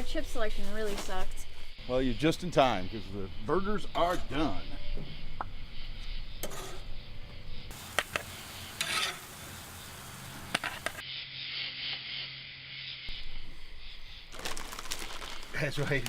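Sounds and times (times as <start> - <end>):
background hiss: 7.3 - 16.0.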